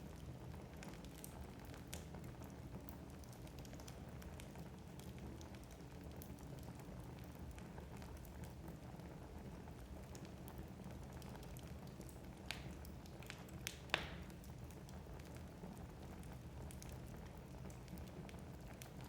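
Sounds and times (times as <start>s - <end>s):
low rumble of flames: 0.0s - 19.0s
small fire crackles: 0.0s - 19.0s
burning logs popping: 9.3s - 19.0s.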